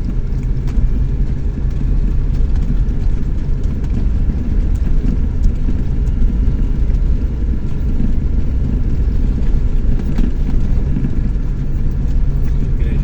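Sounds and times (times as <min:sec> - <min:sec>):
pickup engine rumble: 0:00.0 - 0:13.0
road noise: 0:00.0 - 0:13.0.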